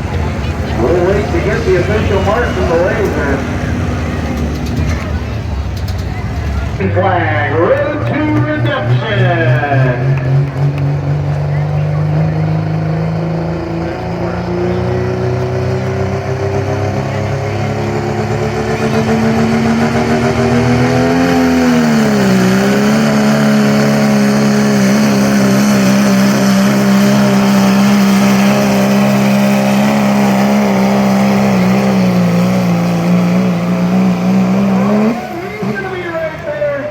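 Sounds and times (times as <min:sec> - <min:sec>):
vehicle engine running under load: 0:00.0 - 0:36.9.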